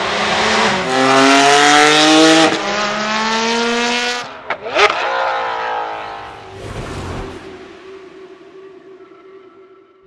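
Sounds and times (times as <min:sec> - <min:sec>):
car engine accelerating hard: 0:00.0 - 0:09.2.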